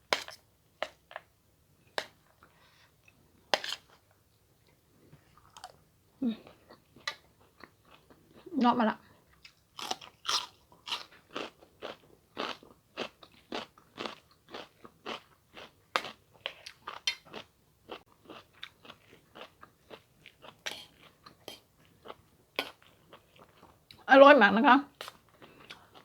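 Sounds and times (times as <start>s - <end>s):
person chewing food: 0.1s - 24.0s, 24.9s - 26.0s.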